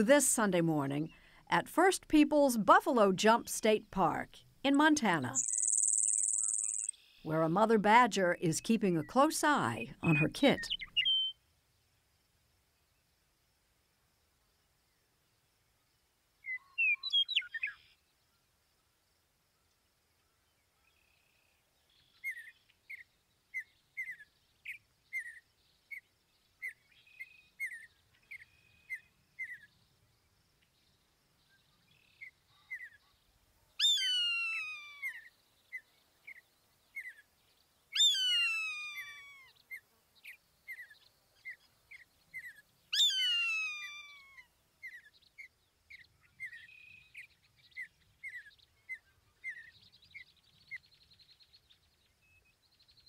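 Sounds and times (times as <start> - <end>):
long downward-sliding bird calls: 5.4 - 7.1, 33.8 - 35.3, 37.9 - 39.6, 42.9 - 45.0
short high bird chirps: 5.4 - 7.2, 10.1 - 11.4.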